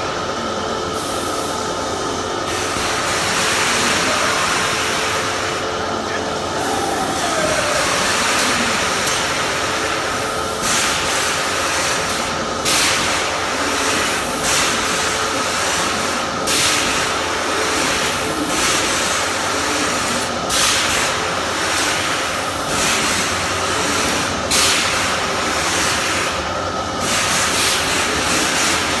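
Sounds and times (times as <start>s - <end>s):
amusement ride machine hum: 0.0s - 29.0s
hissing rush: 3.0s - 9.9s.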